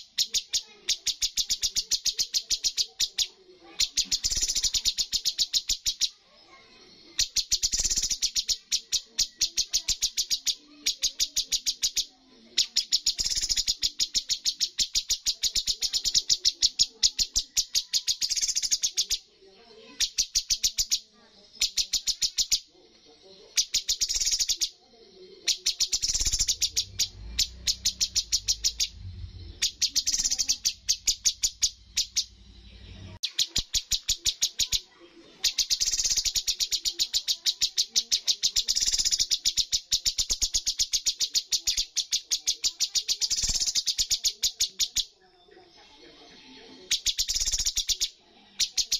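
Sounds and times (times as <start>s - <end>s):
bird singing rapid trills: 0.0s - 45.4s, 46.7s - 48.9s.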